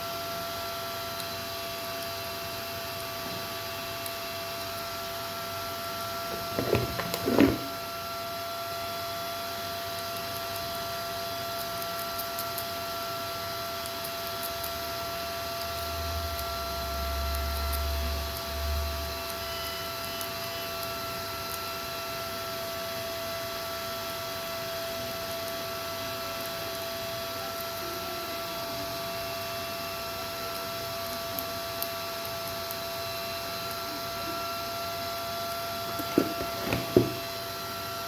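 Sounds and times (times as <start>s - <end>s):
electrical hum with thin tones: 0.0s - 8.2s, 25.0s - 38.0s
small objects clattering: 6.3s - 7.8s, 35.9s - 37.3s.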